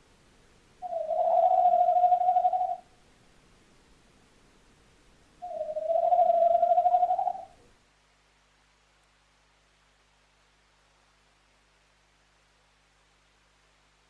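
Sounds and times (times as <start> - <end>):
owl hooting: 0.8 - 3.0, 5.4 - 7.6.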